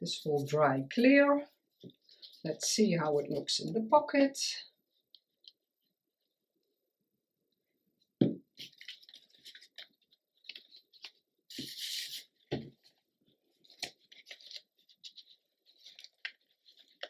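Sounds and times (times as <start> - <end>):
paper rustling: 8.6 - 17.0.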